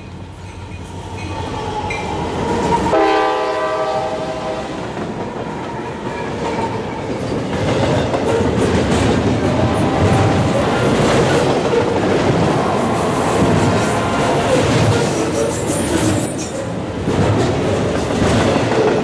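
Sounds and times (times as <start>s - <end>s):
diesel locomotive engines rumbling: 0.0s - 19.0s
train horn: 2.8s - 5.0s, 9.4s - 11.0s, 12.2s - 15.6s
wheels clacking over rail joints: 5.0s - 19.0s.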